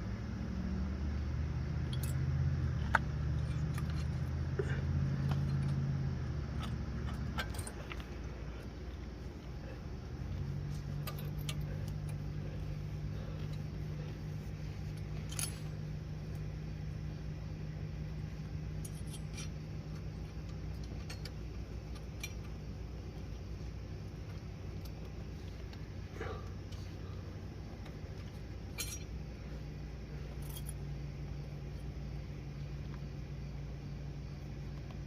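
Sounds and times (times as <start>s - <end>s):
steady low hum: 0.0s - 35.0s
metallic clicks of tools: 1.8s - 2.2s, 2.8s - 4.4s, 5.2s - 5.9s, 6.5s - 8.3s, 10.7s - 12.4s, 14.9s - 16.5s, 18.8s - 22.6s, 27.8s - 29.2s.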